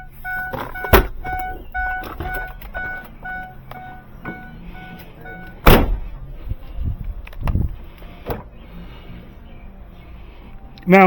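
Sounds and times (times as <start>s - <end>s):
car warning chime beeping: 0.0s - 6.3s
loud thunk: 5.6s - 6.1s.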